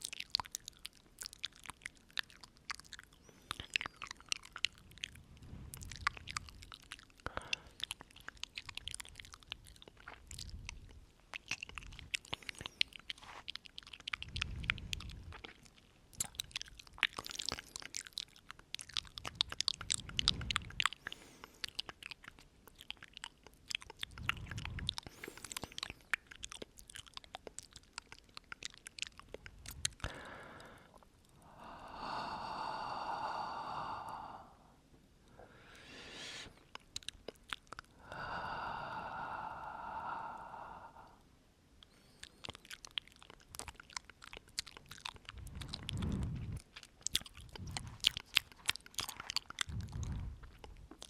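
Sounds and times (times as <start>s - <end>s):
wet mouth clicks and smacks: 0.0s - 33.1s, 36.1s - 40.4s, 41.1s - 51.0s
soft breaths: 2.0s - 26.8s, 29.1s - 43.8s, 44.4s - 51.0s.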